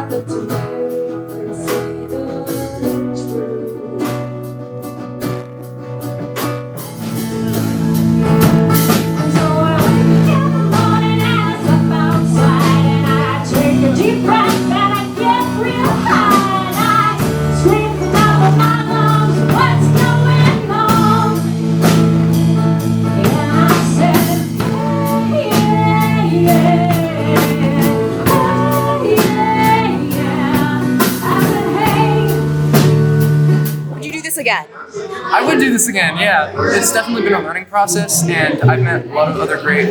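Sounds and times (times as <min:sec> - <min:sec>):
person singing lead vocal: 0:00.0 - 0:04.8, 0:09.1 - 0:21.5
rock band playing: 0:00.0 - 0:39.9.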